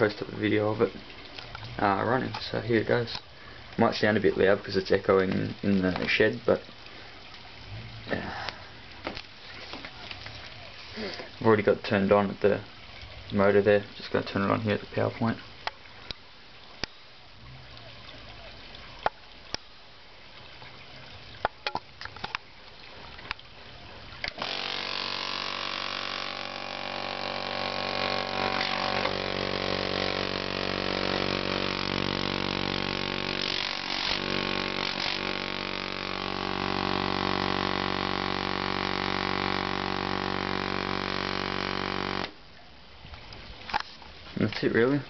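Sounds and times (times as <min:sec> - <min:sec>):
air compressor running: 0:24.4 - 0:42.4.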